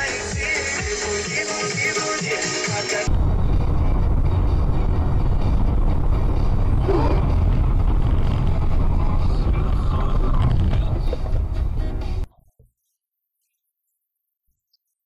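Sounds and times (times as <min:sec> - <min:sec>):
vehicle road and engine rumble: 0:03.1 - 0:12.3.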